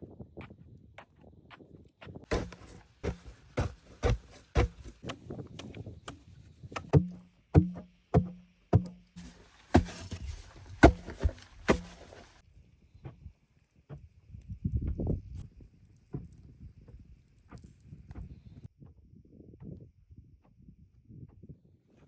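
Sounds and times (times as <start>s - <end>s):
hand tool striking wood: 2.3s - 6.2s, 6.8s - 12.4s.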